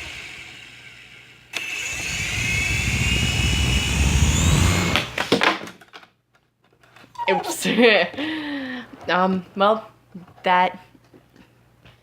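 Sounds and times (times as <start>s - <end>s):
toy helicopter motor whine: 1.6s - 5.0s.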